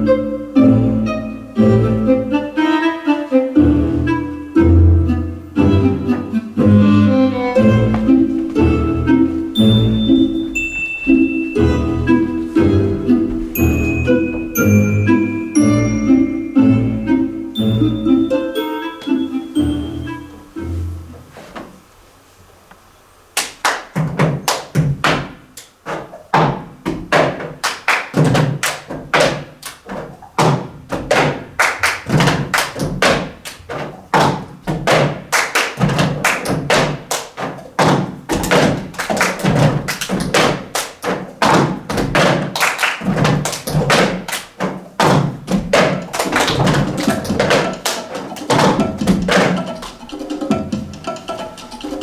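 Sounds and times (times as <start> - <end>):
rapid knocks and taps: 23.4 - 52.0.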